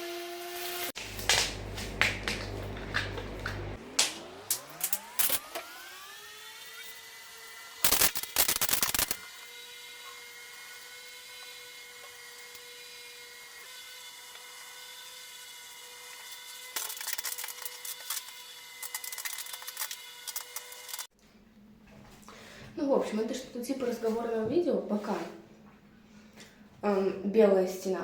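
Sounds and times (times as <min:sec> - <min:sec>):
power tool motor whining: 0:04.5 - 0:21.1.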